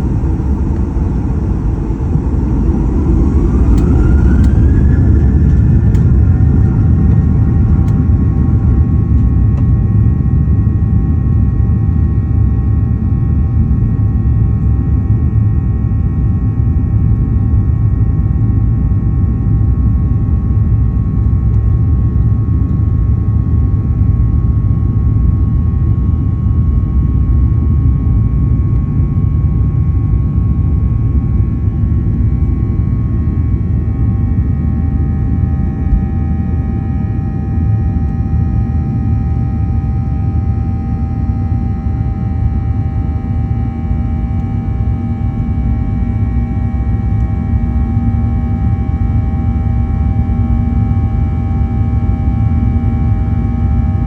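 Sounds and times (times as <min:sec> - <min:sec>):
jet engines whining: 0:00.0 - 0:11.4
airflow rumble in aircraft cabin: 0:00.0 - 0:54.0.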